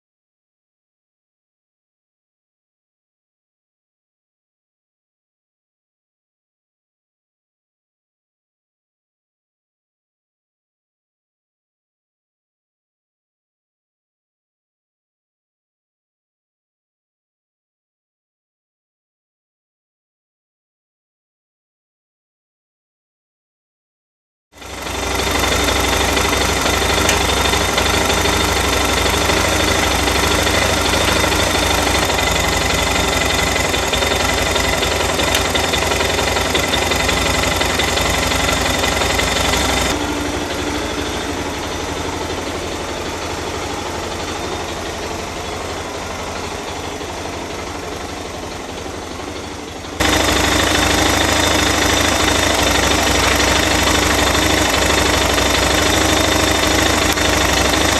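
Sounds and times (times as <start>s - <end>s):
motorcycle engine idling: 24.6s - 57.9s.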